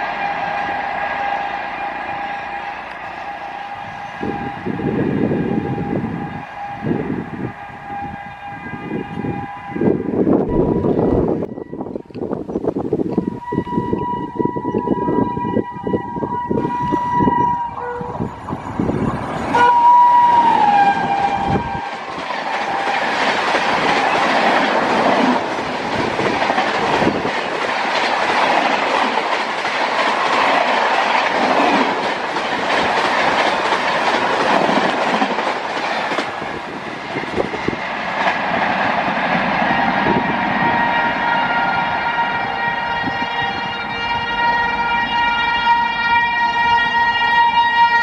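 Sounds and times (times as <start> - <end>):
train horn: 0.0 - 12.0, 13.1 - 18.4, 19.5 - 23.4, 39.3 - 48.0
steady siren-like tone: 0.0 - 12.2, 13.1 - 21.9, 39.7 - 48.0
train wheels clattering: 21.2 - 40.0.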